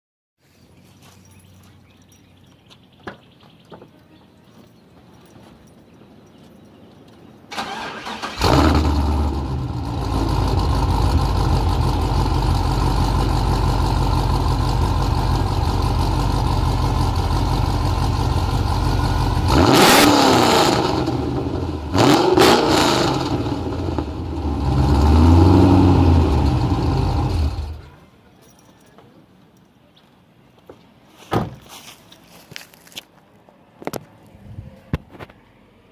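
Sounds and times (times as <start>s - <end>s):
starter motor cranking: 7.5s - 9.0s
car engine idling and revving: 7.7s - 27.9s.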